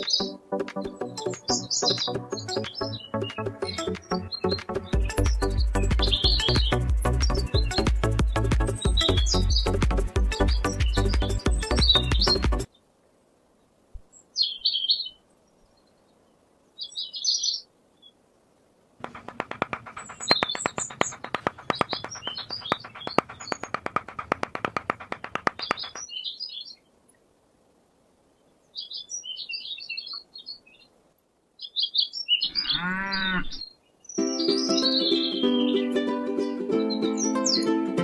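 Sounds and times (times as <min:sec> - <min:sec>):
birds chirping: 0:00.0 - 0:12.8, 0:19.0 - 0:26.9, 0:31.6 - 0:35.9
rapid clicking: 0:19.0 - 0:26.0
low pitched bird call: 0:19.0 - 0:26.8.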